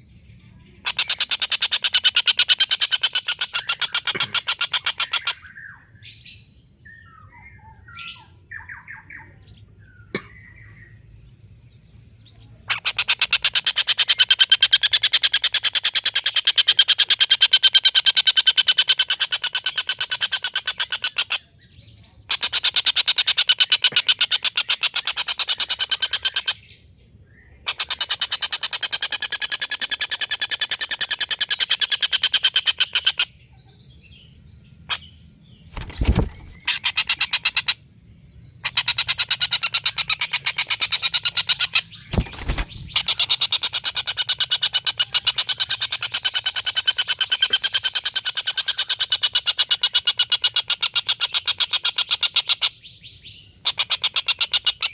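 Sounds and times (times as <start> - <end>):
kingfisher cackling calls: 35.8 - 37.8.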